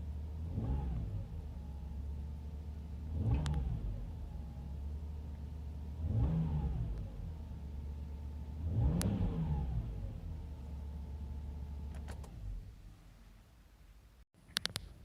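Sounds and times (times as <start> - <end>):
car engine idling and revving: 0.0 - 13.2
sharp clicks: 14.4 - 15.0.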